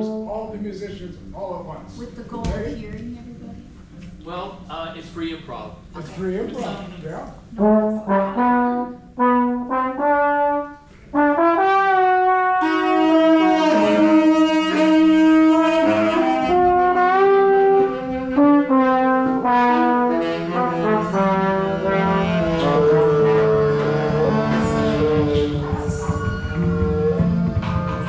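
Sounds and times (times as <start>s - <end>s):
instruments improvising together: 12.4s - 28.0s.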